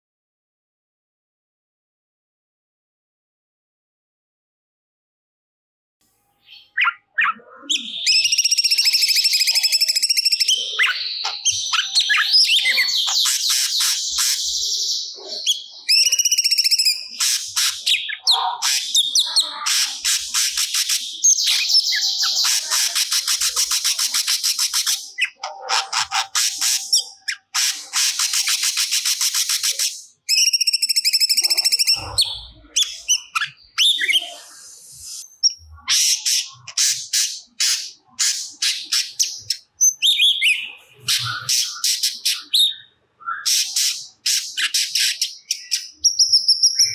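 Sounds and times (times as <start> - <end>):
songbird singing: 6.3 - 46.9.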